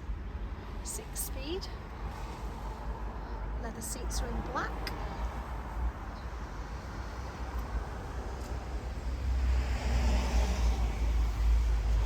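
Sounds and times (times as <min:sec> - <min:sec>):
passing vehicle: 0:01.6 - 0:12.0
wind rumble on microphone: 0:04.8 - 0:12.0.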